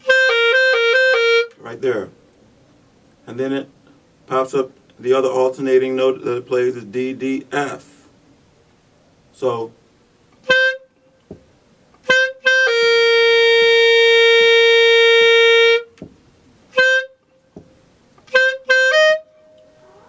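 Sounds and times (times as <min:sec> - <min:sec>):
clarinet notes: 0:00.0 - 0:01.6, 0:10.4 - 0:11.2, 0:12.0 - 0:16.1, 0:16.7 - 0:17.6, 0:18.2 - 0:20.0.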